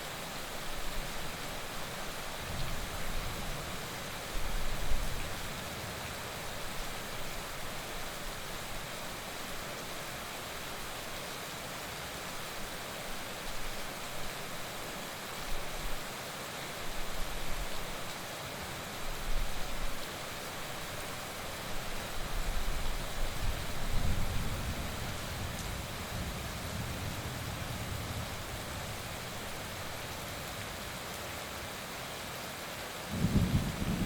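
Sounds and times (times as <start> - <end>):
heavy rain hissing: 33.0 - 34.0.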